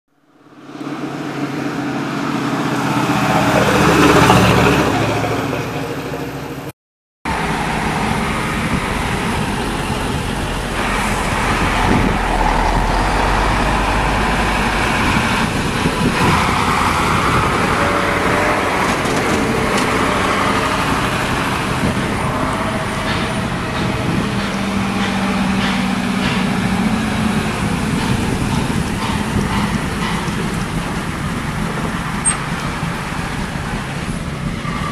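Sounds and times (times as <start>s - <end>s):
fire truck engine passing by: 0.2s - 6.7s, 7.3s - 34.9s
fire truck engines running: 7.3s - 34.9s.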